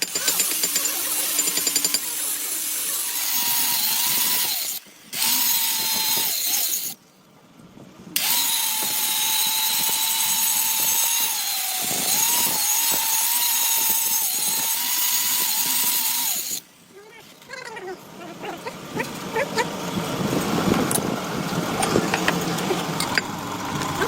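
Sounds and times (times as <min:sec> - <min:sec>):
electric power tool whining: 0:00.0 - 0:07.0, 0:08.2 - 0:16.7.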